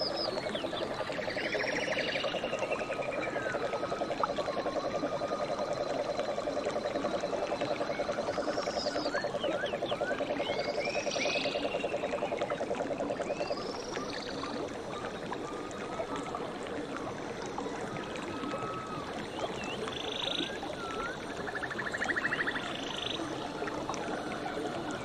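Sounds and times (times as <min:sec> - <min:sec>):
whistles and chirps: 0:07.2 - 0:12.3, 0:18.4 - 0:23.3.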